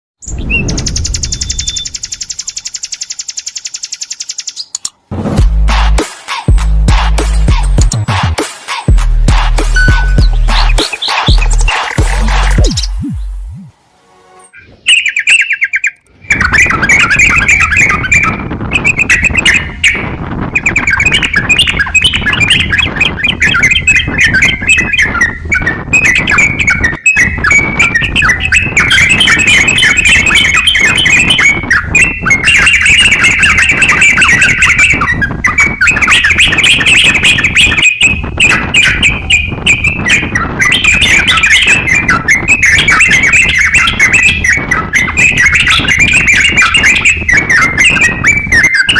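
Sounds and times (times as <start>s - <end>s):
short bird trill: 0.2s - 4.7s
songbird chattering song: 0.2s - 4.9s, 9.6s - 13.7s, 14.5s - 48.9s.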